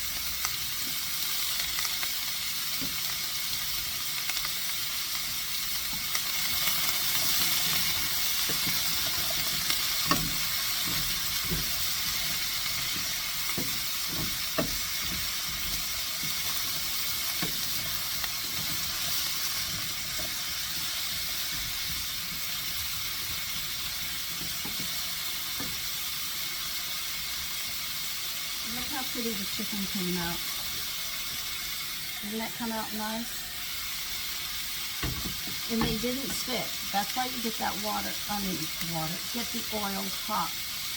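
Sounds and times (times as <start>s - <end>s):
chicken sizzling in oil: 0.0s - 40.9s
knocks against a pan: 35.0s - 36.4s.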